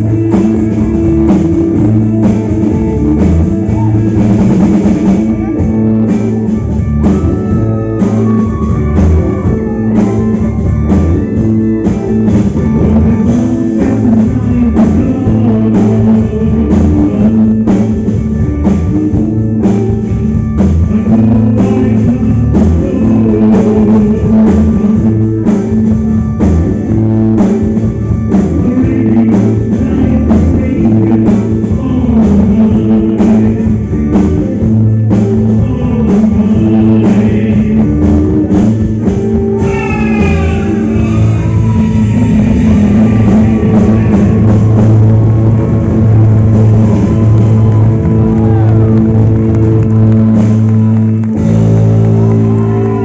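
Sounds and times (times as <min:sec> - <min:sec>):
person singing: 0:00.0 - 0:20.1, 0:20.8 - 0:26.0, 0:28.2 - 0:53.0
bass line: 0:00.0 - 0:53.0
drum kit beat: 0:00.0 - 0:53.0
guitar: 0:00.0 - 0:53.0
falling high notes: 0:02.6 - 0:12.7, 0:39.4 - 0:53.0.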